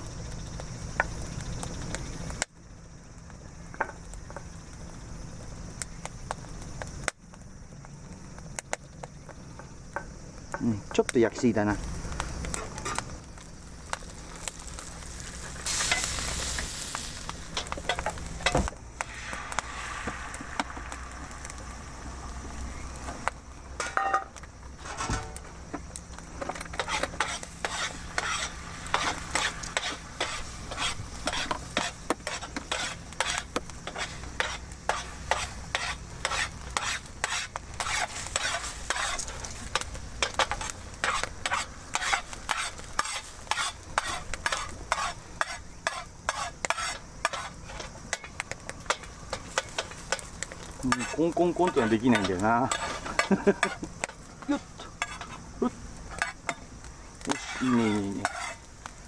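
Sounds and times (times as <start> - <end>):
food sizzling in a frying pan: 0.0 - 59.0
wood fire: 0.0 - 59.0
utensil scraping and clicking on pan: 26.4 - 59.0.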